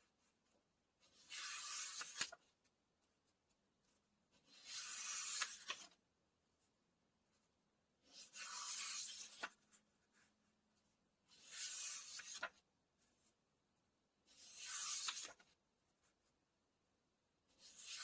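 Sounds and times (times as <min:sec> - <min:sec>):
book pages turning: 0:01.0 - 0:02.7, 0:04.4 - 0:06.0, 0:08.0 - 0:10.3, 0:11.3 - 0:12.6, 0:14.3 - 0:15.6.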